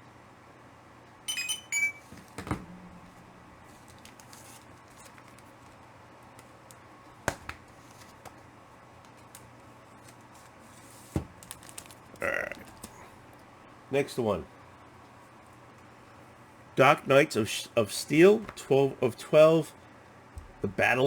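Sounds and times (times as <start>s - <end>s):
steady low hum: 1.3s - 7.2s, 12.1s - 21.0s.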